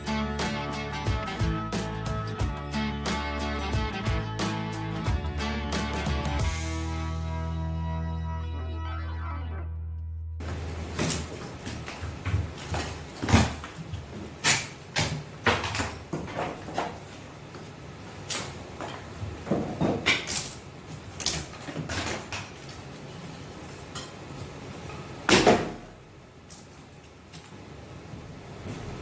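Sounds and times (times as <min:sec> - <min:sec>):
wood slats cracking and clattering: 0:10.4 - 0:27.6.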